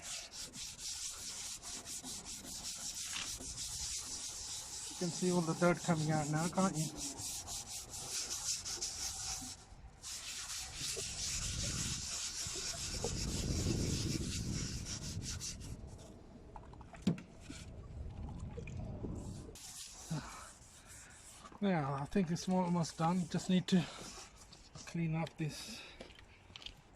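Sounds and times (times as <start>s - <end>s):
sandpaper rubbing on plastic: 0.0s - 16.0s, 19.2s - 21.5s, 22.6s - 25.0s.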